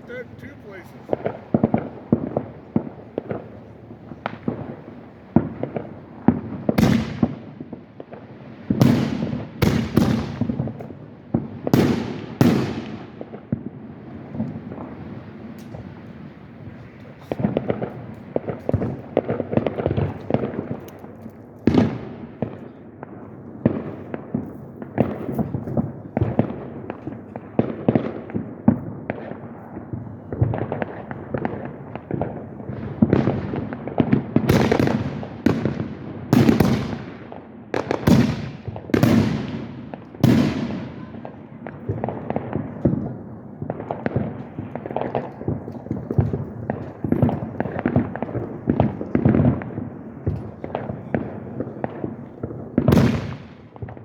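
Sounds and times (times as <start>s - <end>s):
fireworks bangs and crackling: 0.0s - 54.0s
loud sharp fireworks booms: 0.0s - 54.0s.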